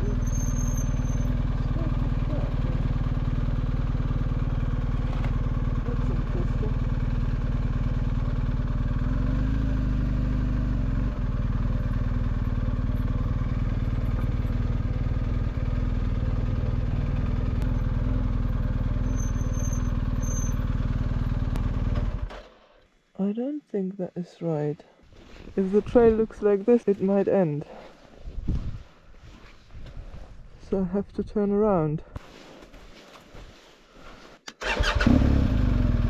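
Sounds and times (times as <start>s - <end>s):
motorcycle engine running: 0.0s - 22.5s, 34.6s - 36.0s.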